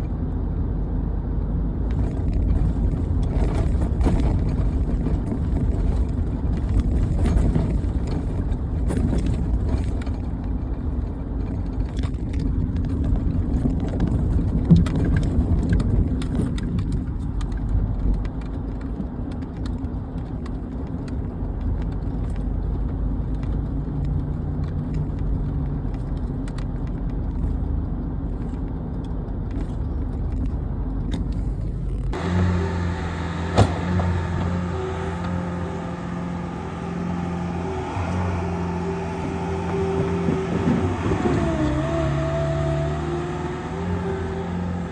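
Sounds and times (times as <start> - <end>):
engine idling with even hum: 27.0 - 44.9
vehicle engine running: 29.7 - 44.9.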